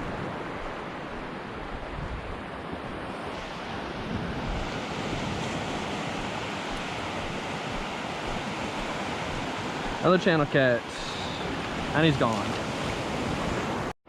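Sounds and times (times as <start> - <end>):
wind on microphone: 0.0 - 10.0
waves breaking on beach: 0.0 - 13.9.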